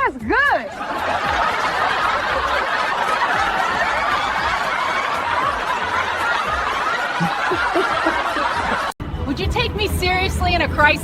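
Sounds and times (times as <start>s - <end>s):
crowd laughing: 0.5s - 9.0s.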